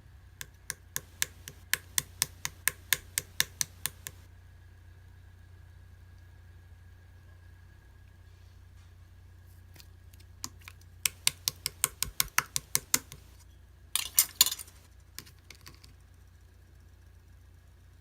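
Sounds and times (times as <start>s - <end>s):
steady low hum: 0.0s - 18.0s
sharp clicks: 0.4s - 4.3s, 10.4s - 13.4s
dense clatter: 14.0s - 14.8s.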